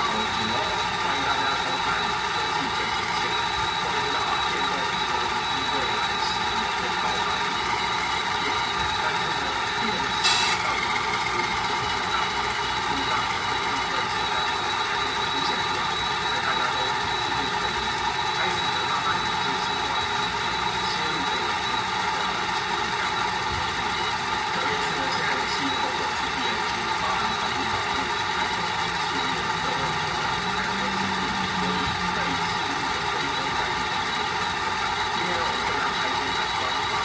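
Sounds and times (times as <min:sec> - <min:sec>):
toy truck engine idling: 0:00.0 - 0:37.0.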